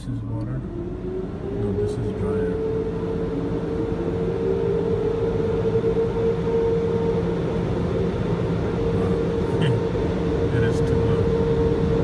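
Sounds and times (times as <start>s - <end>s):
constant whine: 0.0s - 12.0s.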